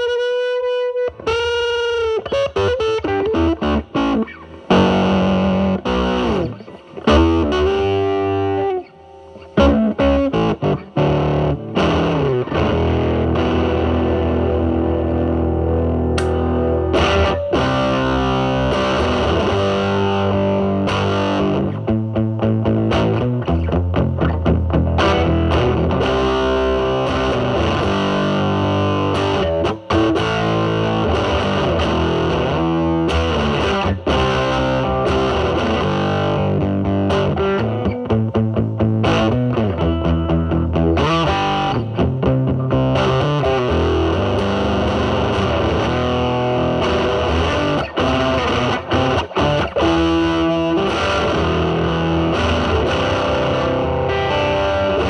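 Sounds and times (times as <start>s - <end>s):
electric guitar with fuzz tone: 0.0s - 55.0s.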